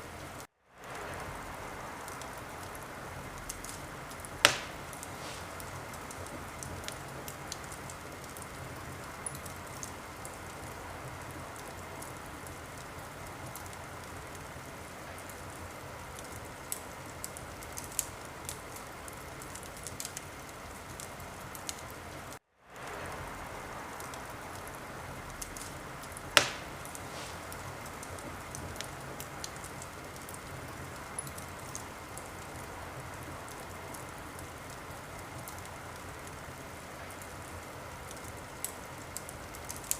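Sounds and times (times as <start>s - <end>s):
wood fire crackling: 0.0s - 39.9s
loud pop of fire: 3.4s - 8.4s, 25.4s - 30.3s.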